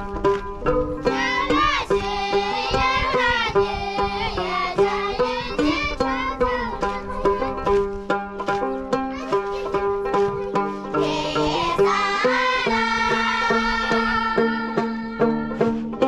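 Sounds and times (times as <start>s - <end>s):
plucked string instrument: 0.0s - 16.0s
person singing: 11.0s - 15.8s.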